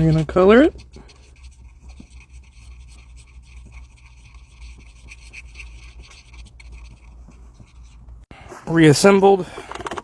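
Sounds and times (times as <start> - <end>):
faint scratching: 0.0 - 9.4
handling noises: 6.6 - 10.0.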